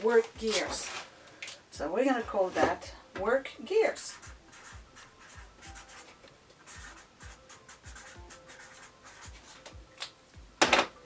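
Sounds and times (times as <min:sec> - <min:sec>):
scratchy pen strokes: 0:04.0 - 0:09.6.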